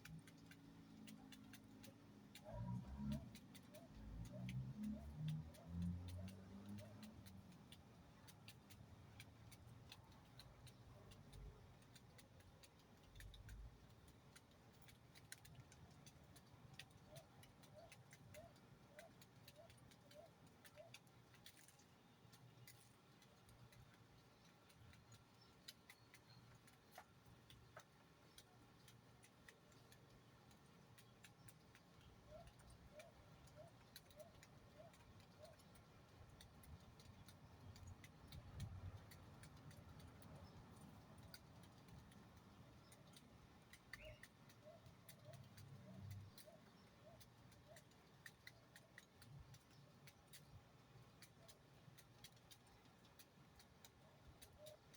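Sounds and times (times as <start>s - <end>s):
faint ticks: 0.0s - 54.9s
faint bird calls: 43.9s - 48.0s.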